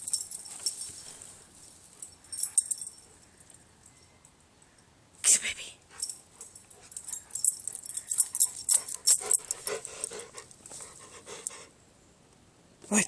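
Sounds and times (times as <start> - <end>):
dog noises: 5.9 - 11.7.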